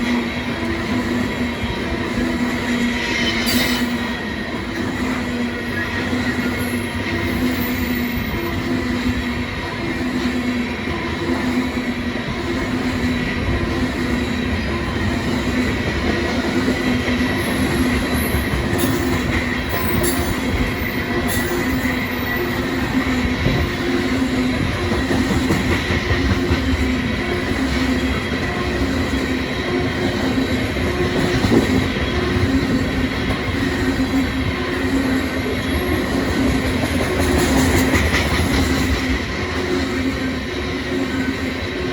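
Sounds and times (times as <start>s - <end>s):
train wheels rumbling on rail: 0.0s - 41.9s
high wheel squeal: 2.8s - 4.2s, 5.6s - 8.7s, 17.2s - 24.6s.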